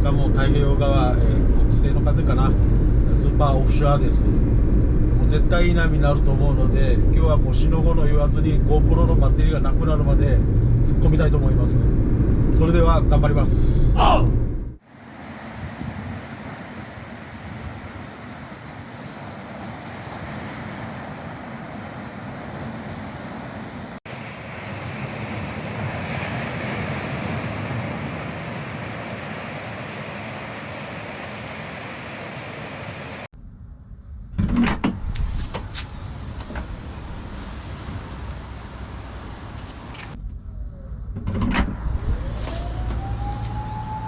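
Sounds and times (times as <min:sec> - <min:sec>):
vehicle low rumble: 0:00.0 - 0:14.8
ocean surf: 0:14.0 - 0:33.3
wind on microphone: 0:15.4 - 0:21.0.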